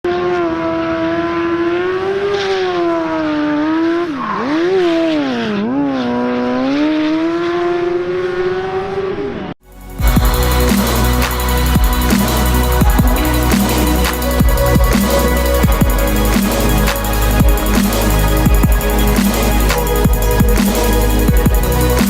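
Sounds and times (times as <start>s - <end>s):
engine revving high: 0.1s - 22.0s
electronic music with heavy beat: 9.6s - 22.0s.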